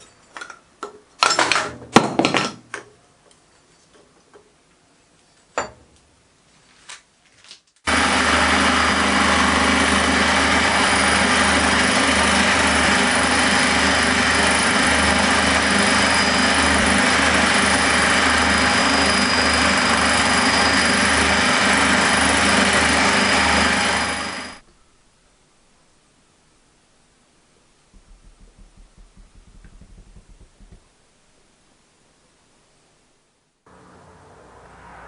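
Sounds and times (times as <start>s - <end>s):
machine tool humming and whining: 7.9s - 24.7s.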